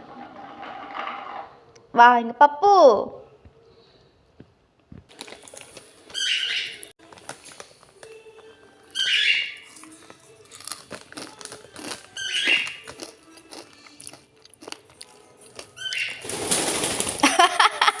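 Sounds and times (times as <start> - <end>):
bird chirp: 8.9 - 9.7, 12.2 - 12.9
bird crunching snack: 9.6 - 15.9.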